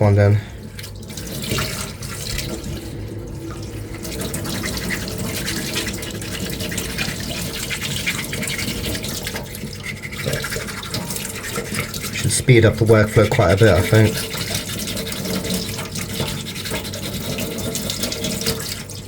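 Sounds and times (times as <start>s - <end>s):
sandpaper scrubbing back and forth: 4.6s - 12.4s, 13.1s - 18.4s.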